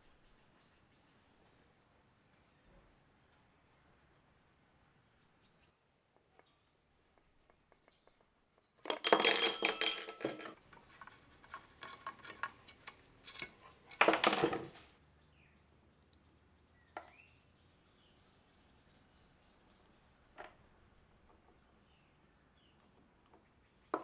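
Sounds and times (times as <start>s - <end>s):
metal tools clinking: 8.9s - 14.8s.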